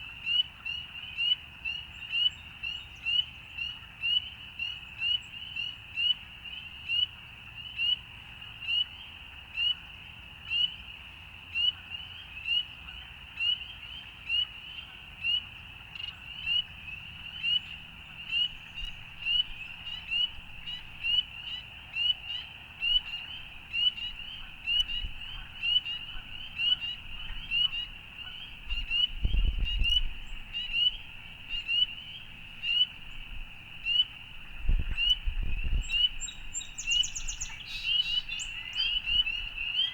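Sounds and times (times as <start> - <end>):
frog peeping: 16.0 - 33.0.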